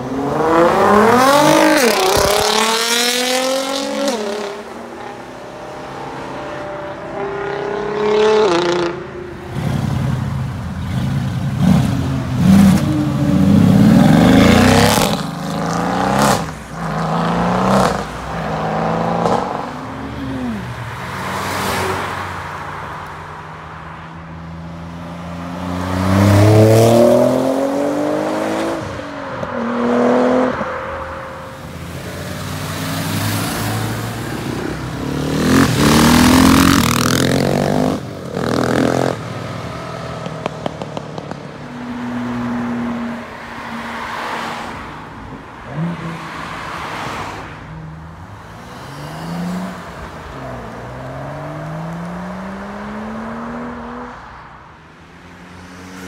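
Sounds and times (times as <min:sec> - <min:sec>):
sports cars accelerating hard: 0:00.0 - 0:10.0, 0:24.7 - 0:47.6, 0:48.5 - 0:54.4.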